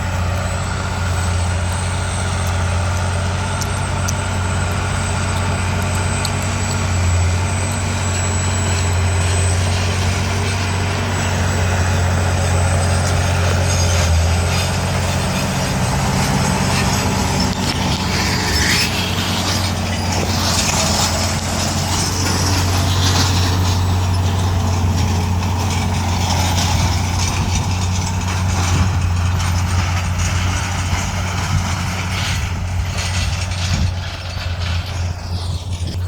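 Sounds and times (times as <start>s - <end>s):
tractor engine droning: 0.0s - 36.0s.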